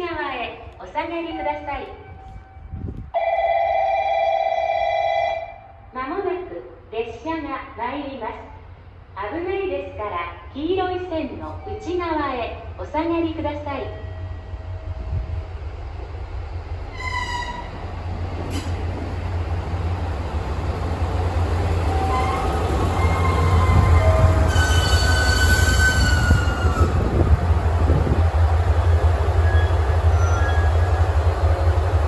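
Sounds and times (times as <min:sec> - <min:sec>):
diesel railcar engine rumble: 0:00.1 - 0:03.2, 0:08.2 - 0:32.0
train brakes squealing: 0:16.9 - 0:17.7, 0:22.0 - 0:27.0, 0:29.4 - 0:31.0.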